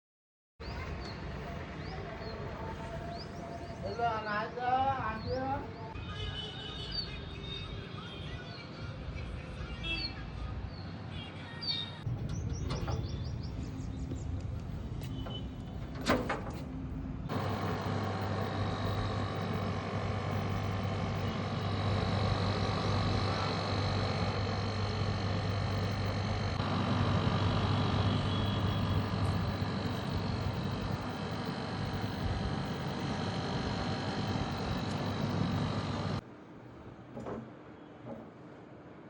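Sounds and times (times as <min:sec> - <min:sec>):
air conditioner unit humming: 0:15.0 - 0:39.0.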